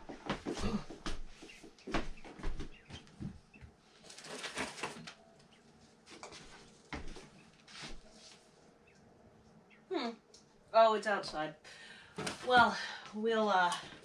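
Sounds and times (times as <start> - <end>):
chicks peeping: 1.4 - 3.7
rustling: 3.9 - 8.6.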